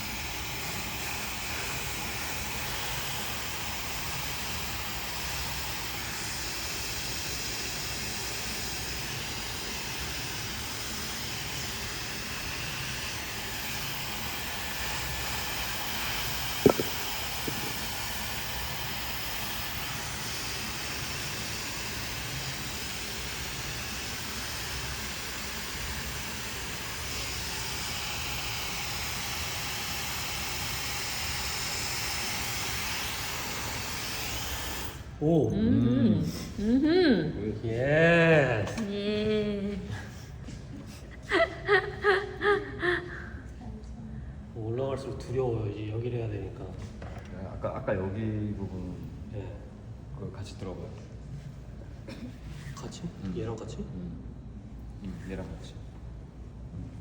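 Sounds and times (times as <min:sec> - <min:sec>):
hair dryer blowing: 0:00.0 - 0:35.2, 0:40.8 - 0:43.4.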